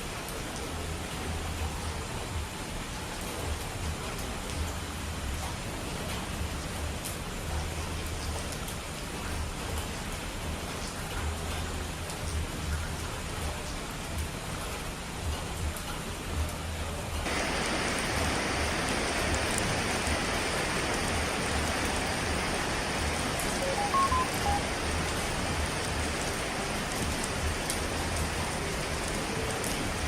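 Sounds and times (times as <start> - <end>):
heavy rain hissing: 17.2 - 30.0
short high notes: 23.6 - 24.6.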